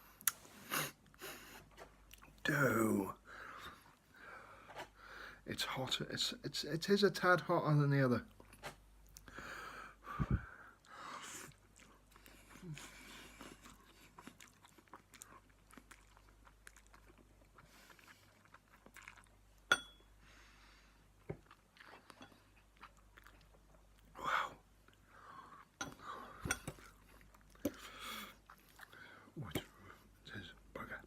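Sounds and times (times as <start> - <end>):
person chewing noodles: 0.1 - 2.5, 10.6 - 30.2.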